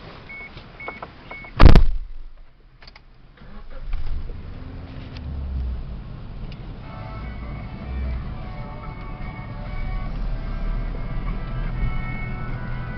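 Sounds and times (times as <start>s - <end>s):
car engine starting and idling: 0.0s - 12.9s
car door slamming: 1.4s - 2.4s.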